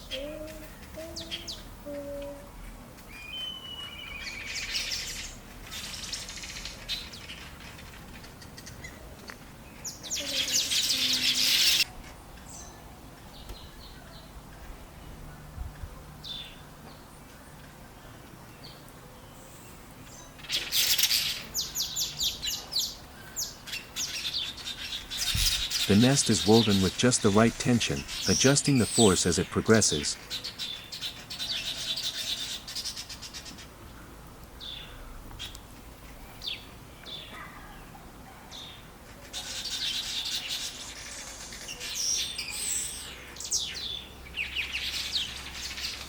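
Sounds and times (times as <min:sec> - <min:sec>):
weavers chattering: 0:00.0 - 0:02.5, 0:03.1 - 0:09.1, 0:09.7 - 0:11.9, 0:20.0 - 0:33.8, 0:38.5 - 0:46.0.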